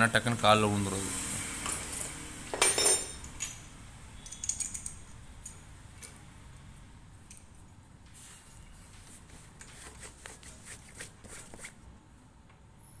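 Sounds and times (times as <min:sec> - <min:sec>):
metal tools clinking and clicking: 0:01.6 - 0:06.3.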